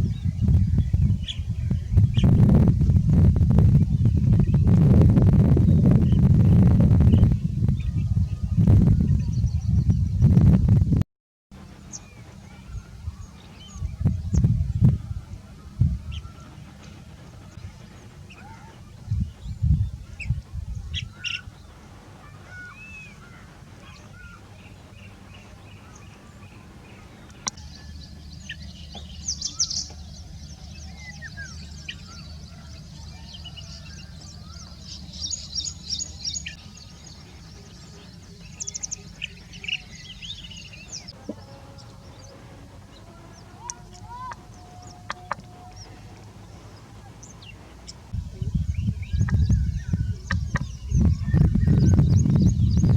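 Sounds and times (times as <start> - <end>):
birds chirping and calling: 0.0 - 3.0, 11.8 - 52.9
low rumbling thumps: 0.0 - 11.0, 11.6 - 22.2, 34.2 - 52.9.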